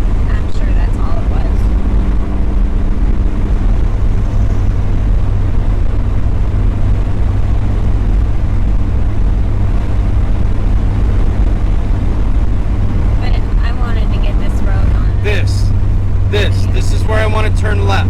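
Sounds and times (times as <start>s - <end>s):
car engine cruising: 0.0s - 18.0s
road noise: 0.0s - 18.0s.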